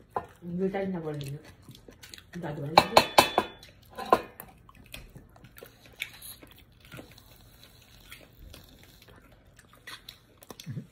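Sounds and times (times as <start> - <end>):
faint chewing and mouth noises: 0.0 - 2.8, 3.6 - 10.9.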